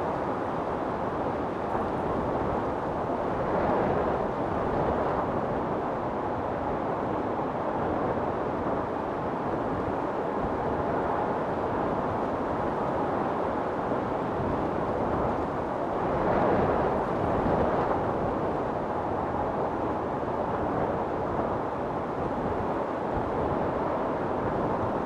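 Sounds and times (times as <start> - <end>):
storm wind blowing: 7.8 - 25.0.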